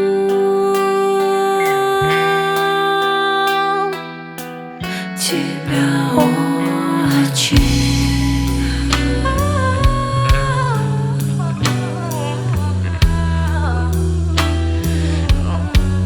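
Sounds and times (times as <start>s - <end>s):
person singing: 0.0s - 16.0s
rock band playing: 7.5s - 16.0s.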